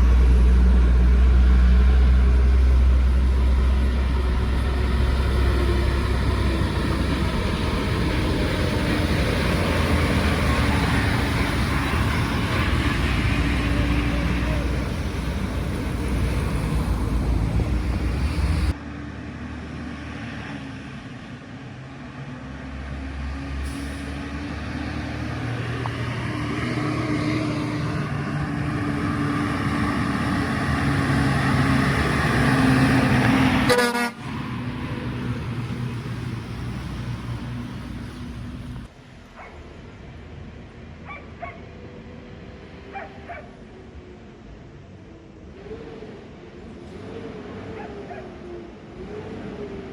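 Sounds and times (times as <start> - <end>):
heavy trucks driving past: 0.0 - 49.9
vehicle horn: 33.6 - 34.3.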